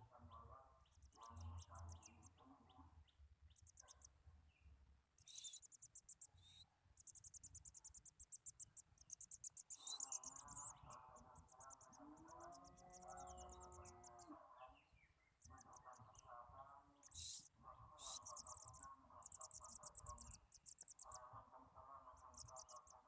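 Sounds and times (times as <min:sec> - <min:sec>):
songbird trilling: 0:05.2 - 0:21.3, 0:22.1 - 0:23.0.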